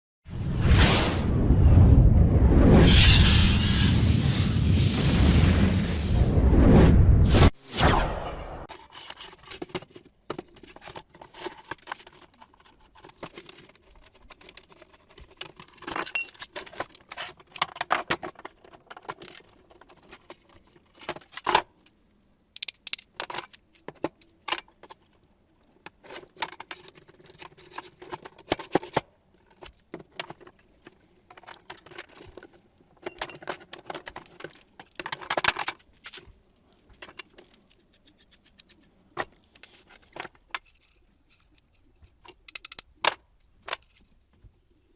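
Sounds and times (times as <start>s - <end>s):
metal parts and tools clinking: 8.7s - 21.4s, 22.5s - 25.0s, 25.8s - 44.4s.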